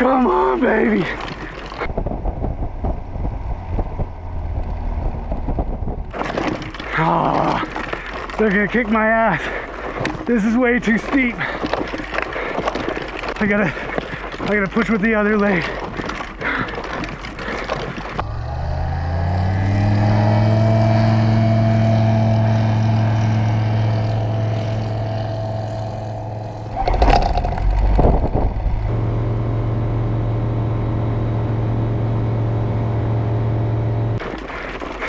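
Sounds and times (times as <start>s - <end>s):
knocks and low rumble: 1.8s - 6.9s, 26.5s - 29.1s
plane piston engine droning: 18.2s - 27.0s.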